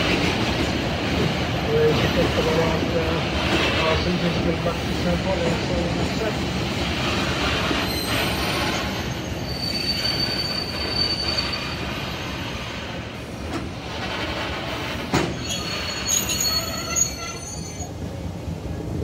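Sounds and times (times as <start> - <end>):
railcar wheels rumbling on rail: 0.0 - 19.0
high wheel squeal: 7.8 - 12.6, 15.3 - 18.0.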